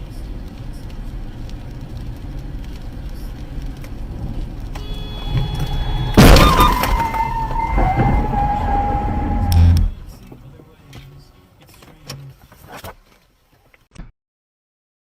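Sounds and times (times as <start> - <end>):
car engine and road rumble: 0.0 - 13.8
loud collision crash: 5.3 - 9.8
steady falling tone: 5.7 - 9.9.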